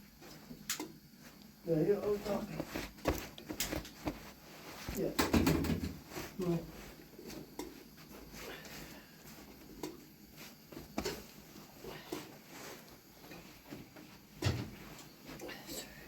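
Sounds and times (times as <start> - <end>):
light knocks and handling noises: 0.2 - 6.4.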